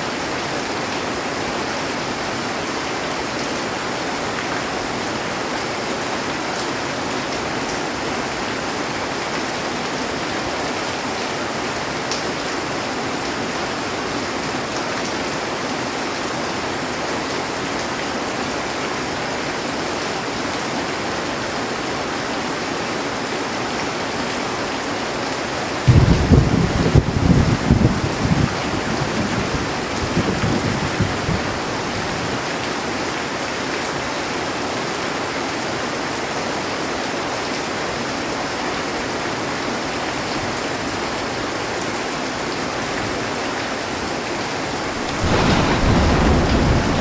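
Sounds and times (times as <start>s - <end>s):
heavy rain on a metal roof: 0.0s - 47.0s
low thunder rumble: 25.9s - 32.4s, 44.8s - 47.0s.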